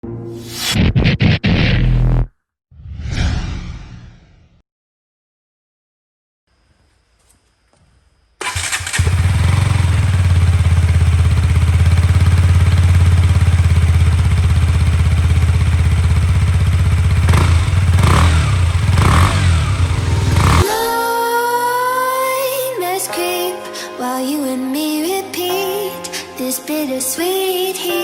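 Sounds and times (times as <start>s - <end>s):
motorcycle engine idling and revving: 8.4s - 20.8s.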